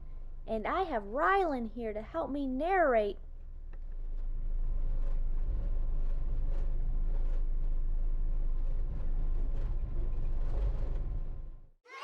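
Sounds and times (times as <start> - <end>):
diesel engine rumbling: 3.4 - 11.7.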